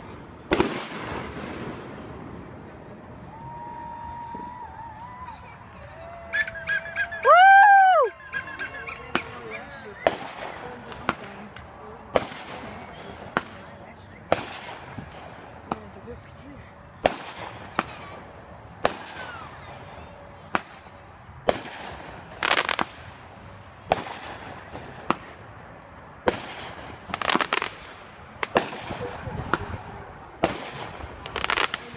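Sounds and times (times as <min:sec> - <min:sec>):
firework bangs with echo: 0:00.5 - 0:02.5, 0:10.0 - 0:11.5, 0:12.1 - 0:13.7, 0:14.3 - 0:16.0, 0:17.0 - 0:18.1, 0:18.8 - 0:19.4, 0:21.4 - 0:23.2, 0:23.8 - 0:25.6, 0:26.2 - 0:29.8, 0:30.4 - 0:31.9.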